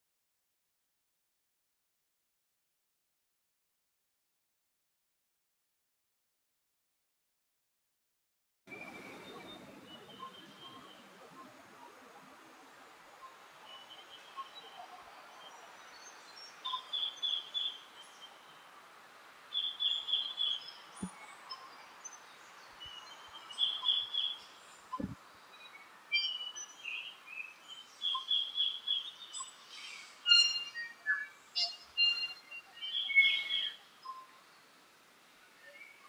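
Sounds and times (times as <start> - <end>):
bird singing bright phrases: 8.7 - 18.8, 19.4 - 34.7, 35.4 - 36.0
steady hiss: 8.7 - 36.0.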